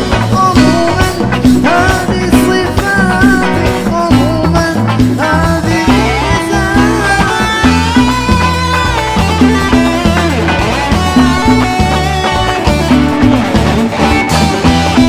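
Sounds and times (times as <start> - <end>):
bass line: 0.0 - 15.0
drum beat: 0.0 - 15.0
live pop band: 0.0 - 15.0
wavering melody: 5.8 - 15.0.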